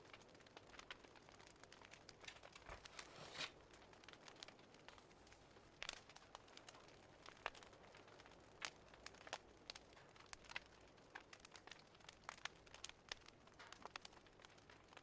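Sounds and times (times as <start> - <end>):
wood fire crackling and popping: 0.0 - 15.0
soft hiss: 2.3 - 3.8.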